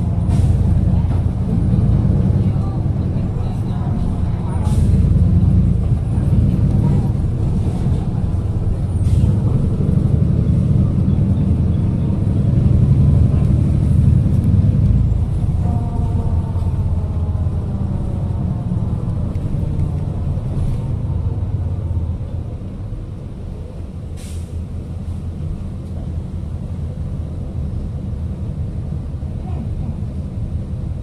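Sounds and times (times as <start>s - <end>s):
bus engine running: 0.0s - 31.0s
air brakes hiss: 24.2s - 24.7s.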